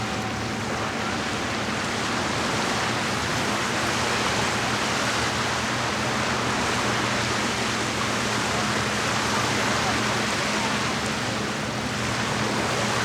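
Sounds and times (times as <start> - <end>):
lakeside ambience rushing: 0.0 - 13.0.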